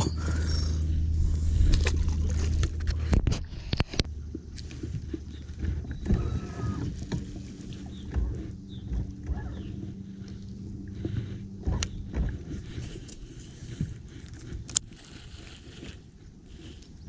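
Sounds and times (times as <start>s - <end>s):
boat motor humming: 0.0s - 17.0s
knocks and clicks in boat: 0.0s - 17.0s.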